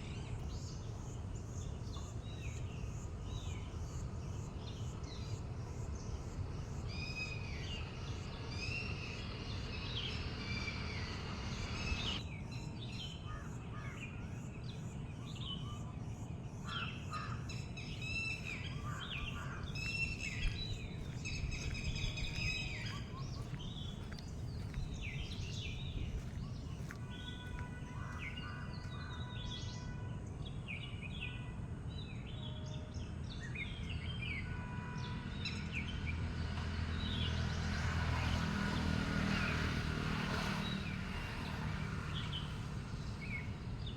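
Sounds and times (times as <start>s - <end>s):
low outdoor hum: 0.0s - 29.4s
small birds chirping: 12.8s - 29.9s.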